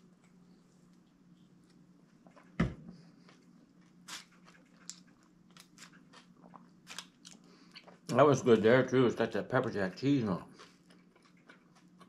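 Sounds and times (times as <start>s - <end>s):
faint steady hum: 0.0s - 12.0s
chewing and mouth noises: 3.2s - 8.2s, 10.5s - 12.0s.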